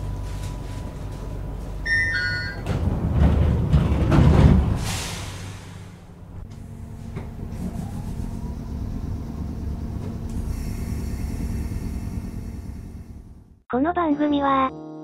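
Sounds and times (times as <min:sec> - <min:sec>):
electric train rumble: 0:00.0 - 0:13.6.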